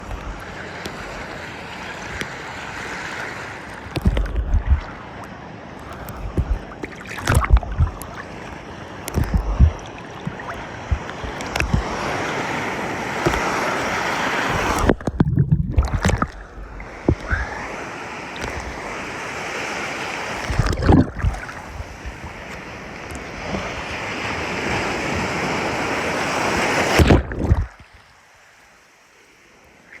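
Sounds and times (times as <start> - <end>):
surf washing on beach: 0.0 - 30.0
wind buffeting microphone: 3.9 - 5.1, 5.9 - 17.8.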